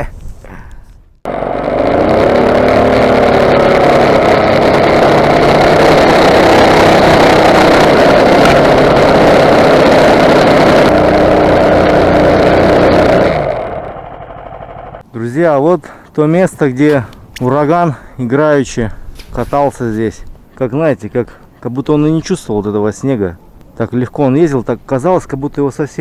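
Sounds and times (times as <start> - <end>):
small engine running at high revs: 1.3 - 15.0.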